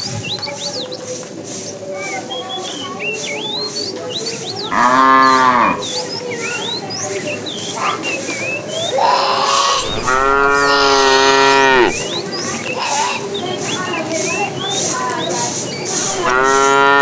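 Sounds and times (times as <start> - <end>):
cow mooing: 4.7 - 5.9, 9.0 - 12.0, 16.1 - 17.0.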